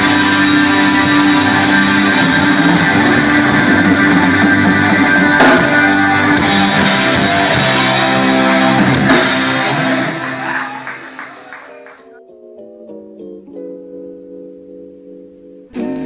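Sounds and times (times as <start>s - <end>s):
rock music with guitar and drums: 0.0s - 11.2s.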